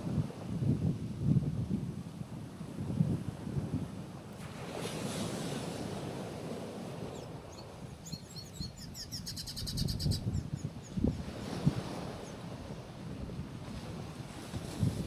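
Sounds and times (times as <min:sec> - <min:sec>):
wind on microphone: 0:00.0 - 0:15.0
small waves on rocky shore: 0:02.3 - 0:08.5, 0:10.7 - 0:15.0
bird chirping and trilling: 0:07.1 - 0:11.2.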